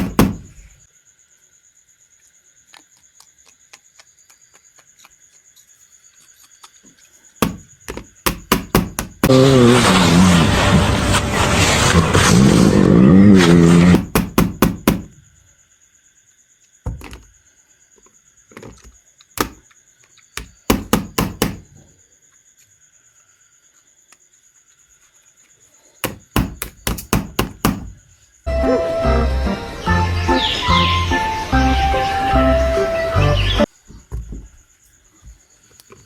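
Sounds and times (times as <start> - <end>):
toy figures knocking and clacking: 6.6 - 9.3, 18.0 - 21.7, 26.0 - 27.9
background music: 28.5 - 33.7.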